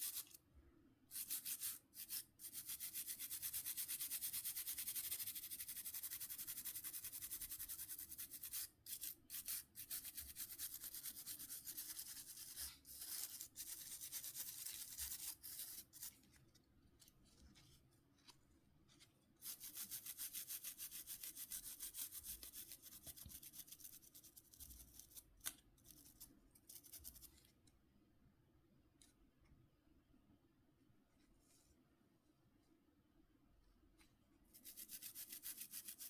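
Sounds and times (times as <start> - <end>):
small brush scrubbing: 0.0 - 0.4, 1.1 - 3.9, 7.4 - 27.6, 34.0 - 36.0.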